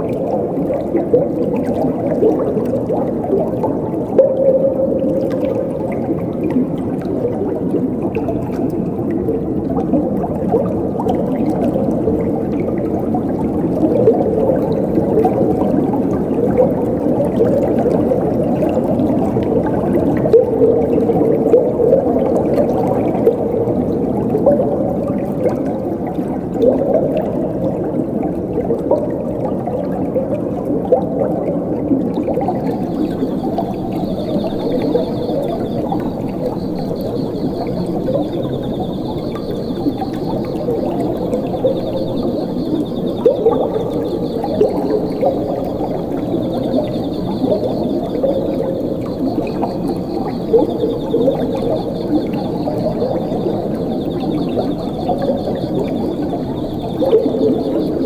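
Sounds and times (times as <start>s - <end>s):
water gurgling and bubbling: 0.0s - 58.0s
cricket trilling: 32.4s - 58.0s.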